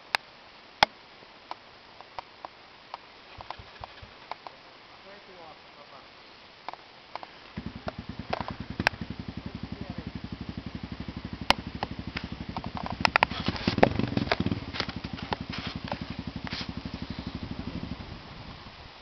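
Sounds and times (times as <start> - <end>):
sharp clicks: 2.9 - 4.6, 6.7 - 9.1, 11.5 - 16.8
motorcycle engine idling: 3.3 - 4.2, 7.5 - 19.0.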